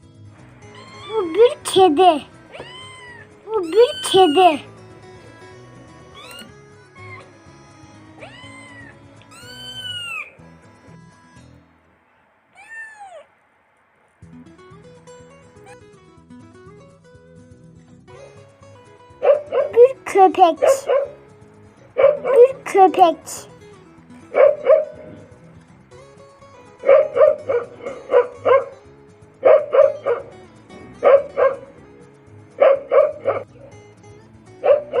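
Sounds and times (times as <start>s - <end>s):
background music: 0.0s - 12.5s, 13.6s - 35.0s
cat meowing: 0.6s - 4.8s, 6.1s - 7.4s, 8.2s - 10.4s, 12.5s - 13.4s, 15.6s - 15.8s
dog barking: 19.2s - 21.2s, 22.0s - 22.7s, 24.3s - 25.3s, 26.8s - 28.8s, 29.4s - 31.9s, 32.5s - 33.7s, 34.6s - 35.0s.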